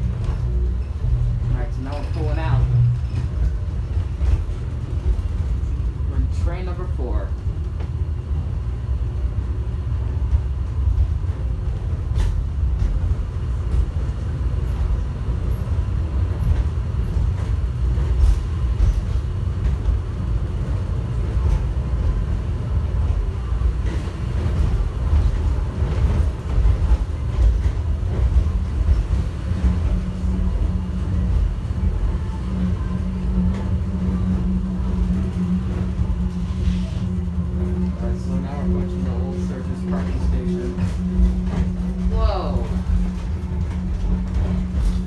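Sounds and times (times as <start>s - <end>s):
train rumbling: 0.0s - 45.0s.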